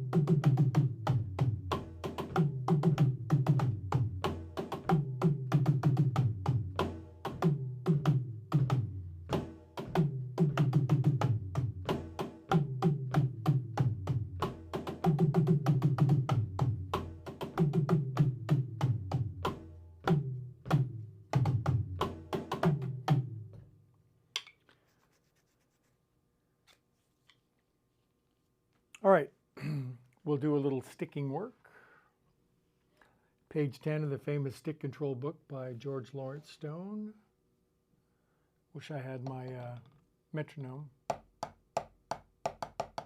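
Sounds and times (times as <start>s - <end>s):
drum kit playing: 0.0s - 23.4s.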